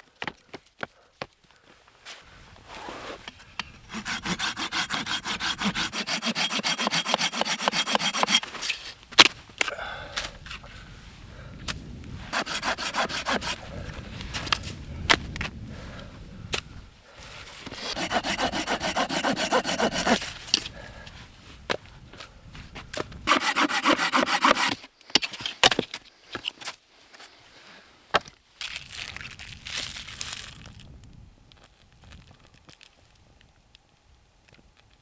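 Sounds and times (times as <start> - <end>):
hand saw cutting wood: 2.8 - 8.8, 12.3 - 13.8, 17.7 - 20.7, 23.3 - 25.3.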